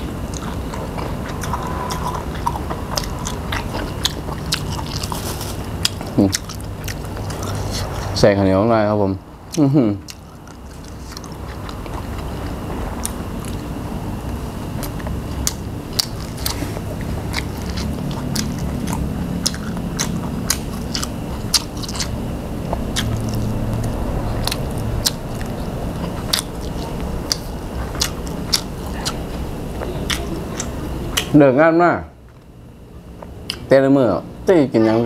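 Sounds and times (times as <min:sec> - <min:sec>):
person chewing crunchy food: 0:00.0 - 0:08.2, 0:09.5 - 0:31.3
wet mouth clicks: 0:33.5 - 0:33.7.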